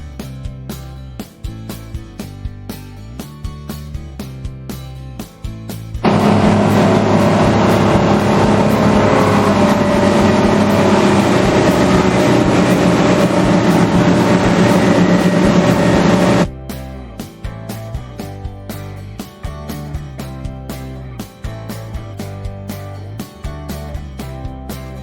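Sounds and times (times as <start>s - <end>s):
motorboat engine running: 6.0s - 16.5s.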